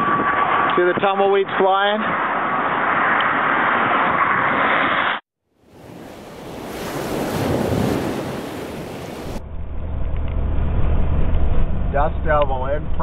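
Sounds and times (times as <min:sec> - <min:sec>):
wind rushing over microphone: 0:00.0 - 0:04.8, 0:05.7 - 0:13.0
vehicle engine humming: 0:09.2 - 0:13.0.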